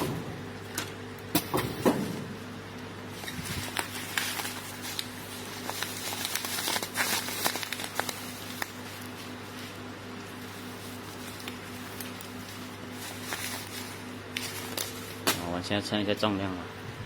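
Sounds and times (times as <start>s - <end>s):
packaging machine electrical hum: 0.0s - 17.0s
plastic pouch crinkling: 3.1s - 15.5s.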